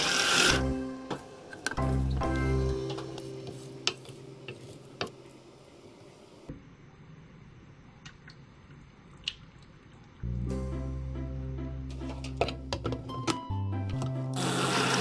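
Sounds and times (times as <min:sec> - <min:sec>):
food chopper motor whirring: 0:00.0 - 0:00.6, 0:14.3 - 0:15.0.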